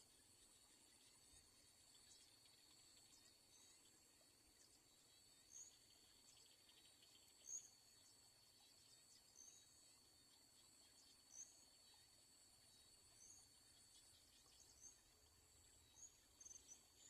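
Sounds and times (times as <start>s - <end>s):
high insect chirp: 0.0s - 17.0s
insect drone: 0.0s - 17.0s.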